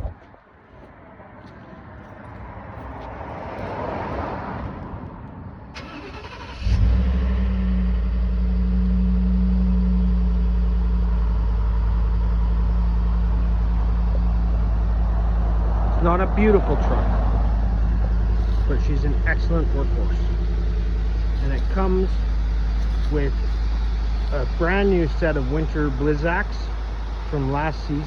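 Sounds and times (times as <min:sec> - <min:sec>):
engine starting and idling: 0:05.7 - 0:09.1, 0:16.0 - 0:28.0.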